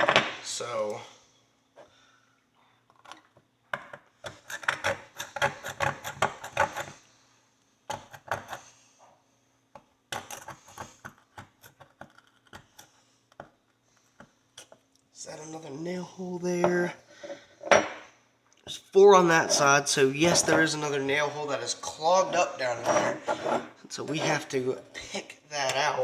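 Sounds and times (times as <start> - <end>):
knife scraping metal horseshoe: 4.3 - 7.0.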